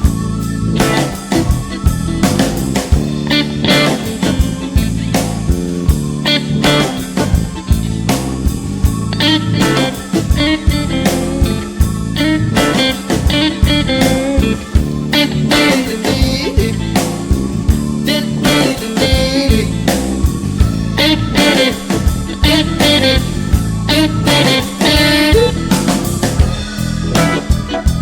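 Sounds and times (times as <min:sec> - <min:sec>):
blues band playing: 0:00.0 - 0:28.0
lead guitar solo: 0:00.0 - 0:28.0.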